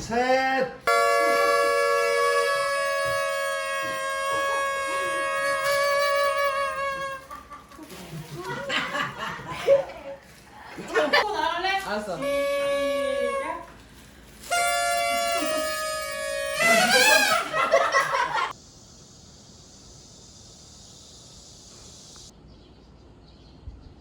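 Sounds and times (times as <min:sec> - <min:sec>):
party horn toot: 0:00.8 - 0:07.6, 0:12.0 - 0:18.5
people laughing: 0:04.1 - 0:11.6, 0:15.1 - 0:18.5
high hiss: 0:14.1 - 0:22.3.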